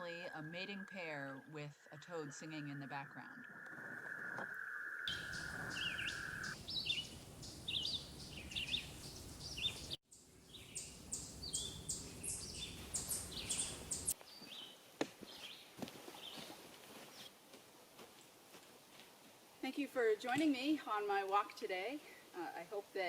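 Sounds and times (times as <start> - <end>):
toad trilling: 0.0 - 8.8
birds chirping: 0.0 - 14.6.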